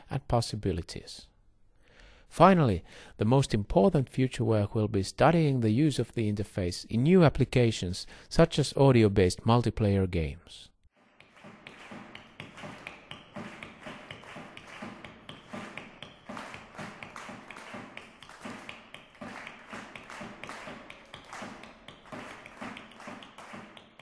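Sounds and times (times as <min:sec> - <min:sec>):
hand clapping: 0:11.0 - 0:24.0.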